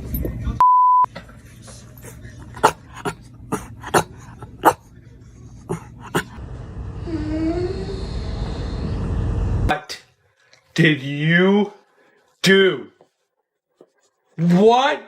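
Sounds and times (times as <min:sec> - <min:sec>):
dog barking: 0:02.6 - 0:04.9.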